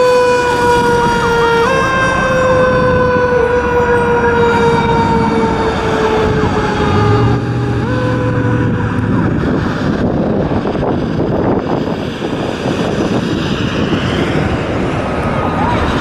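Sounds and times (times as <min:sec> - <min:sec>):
emergency vehicle siren: 0:00.0 - 0:16.0
rumble of engines and traffic: 0:00.0 - 0:16.0.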